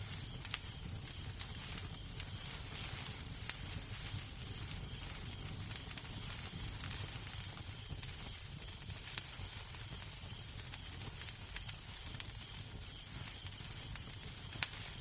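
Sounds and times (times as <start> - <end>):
fireplace fire crackling: 0.0 - 15.0.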